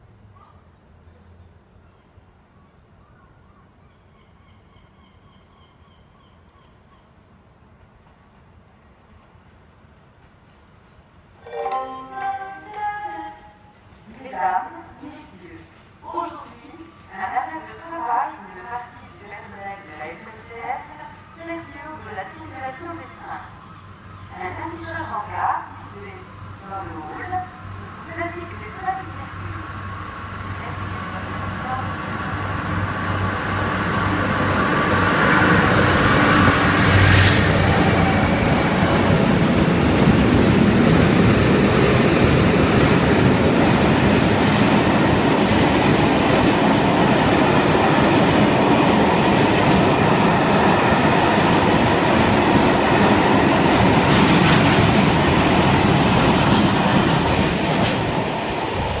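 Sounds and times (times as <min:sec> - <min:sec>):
wheels clickety-clack over rail joints: 0:37.7 - 0:59.0.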